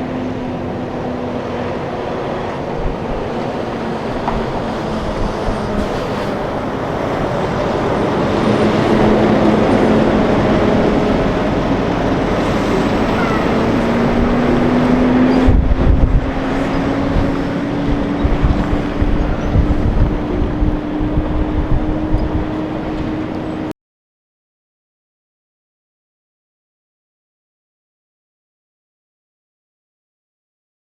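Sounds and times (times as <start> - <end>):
loud road noise: 0.0 - 23.7
truck diesel engine running: 0.0 - 23.7
wind gust on microphone: 0.0 - 23.7.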